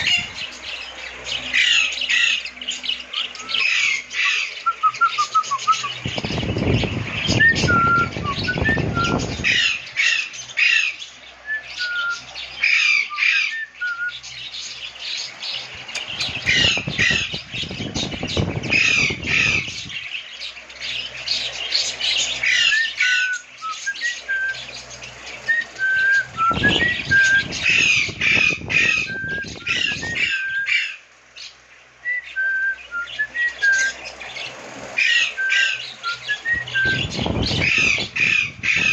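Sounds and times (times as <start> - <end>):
lovebirds chattering and squawking: 0.0 - 38.9.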